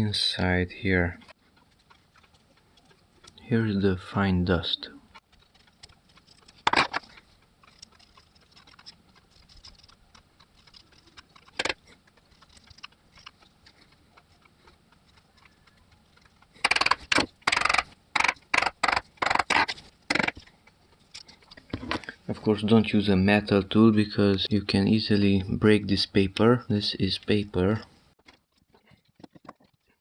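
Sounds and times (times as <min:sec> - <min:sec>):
faint clicks and rustles: 0:00.8 - 0:04.2, 0:04.8 - 0:22.7, 0:27.8 - 0:30.0.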